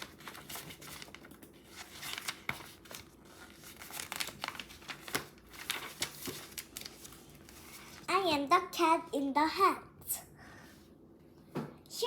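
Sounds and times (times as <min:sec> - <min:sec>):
book pages crinkling and rustling: 0:00.0 - 0:08.1.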